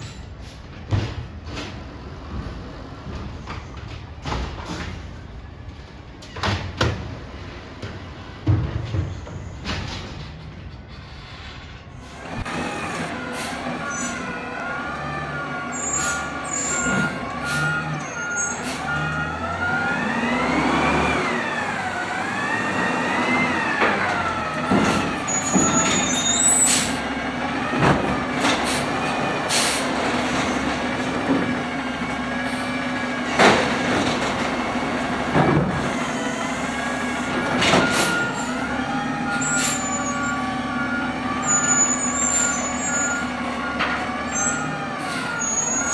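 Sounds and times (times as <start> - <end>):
air brake hisses: 11.1 - 19.5, 24.4 - 27.2, 28.5 - 30.0
garbage truck engine hum: 12.0 - 45.9
hydraulic whine: 12.0 - 45.9.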